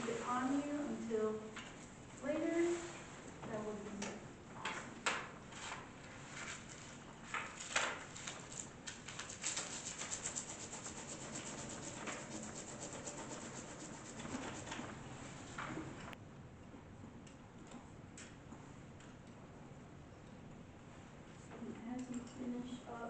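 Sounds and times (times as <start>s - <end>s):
pencils scratching on paper: 9.2s - 15.0s.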